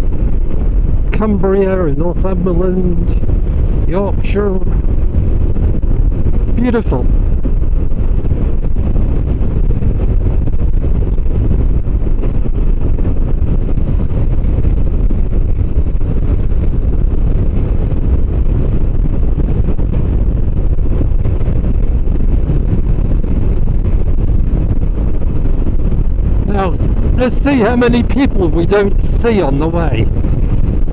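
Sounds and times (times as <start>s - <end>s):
wind noise on microphone: 0.0s - 30.9s
motorcycle engine running: 2.6s - 28.2s.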